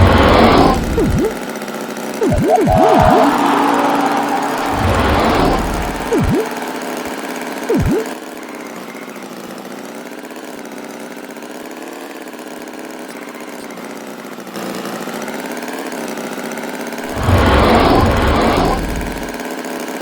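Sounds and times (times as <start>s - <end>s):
engine hum: 0.0s - 1.4s, 2.2s - 6.6s, 17.0s - 19.4s
swooping tone: 0.0s - 1.4s, 2.2s - 6.6s, 7.7s - 8.1s, 17.0s - 19.4s.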